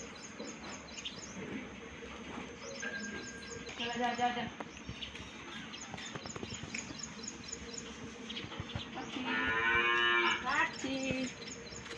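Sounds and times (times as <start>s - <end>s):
cow mooing: 9.2s - 10.5s.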